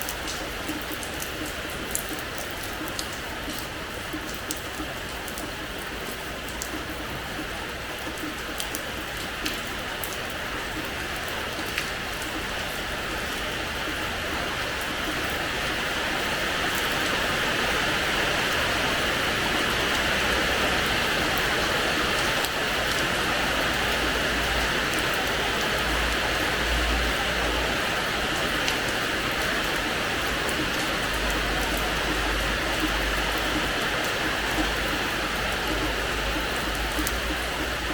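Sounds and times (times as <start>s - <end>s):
sharp rain drop ticks: 0.0s - 6.9s, 30.5s - 37.9s
steady hiss of rain: 0.0s - 37.9s.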